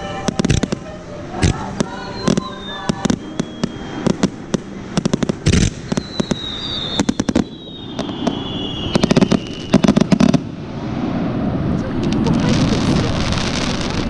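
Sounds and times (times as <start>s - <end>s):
thin high sliding tone: 0.0s - 5.0s
fireworks bangs and crackling: 0.0s - 14.0s.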